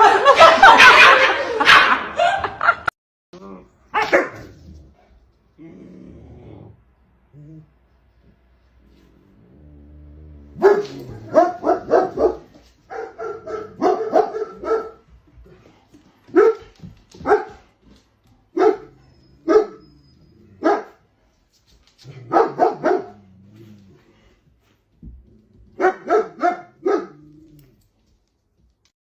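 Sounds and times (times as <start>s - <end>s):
dogs barking: 0.0s - 2.4s, 10.6s - 15.1s, 16.3s - 17.7s, 18.5s - 19.9s, 20.6s - 21.0s, 22.2s - 23.2s, 25.8s - 27.2s.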